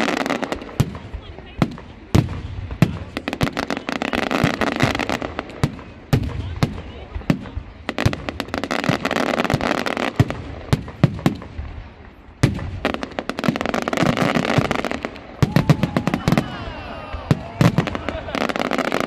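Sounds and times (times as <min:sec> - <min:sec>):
dense firework crackling: 0:00.0 - 0:19.0.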